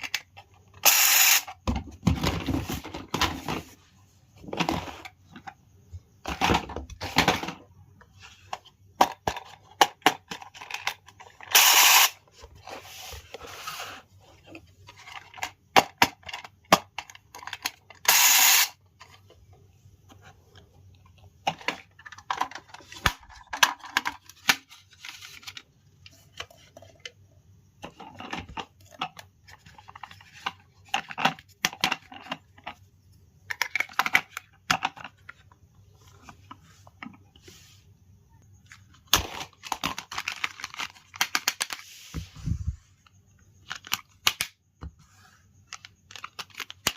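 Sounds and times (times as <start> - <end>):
plastic toy pieces clicking: 39.2 - 41.8.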